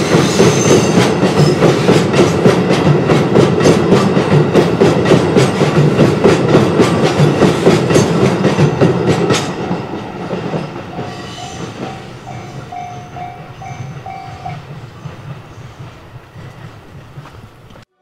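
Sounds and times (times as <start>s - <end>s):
wheels clacking over rail joints: 0.0s - 17.9s
freight train rumbling: 0.0s - 18.0s
level crossing alarm bell: 10.8s - 14.6s.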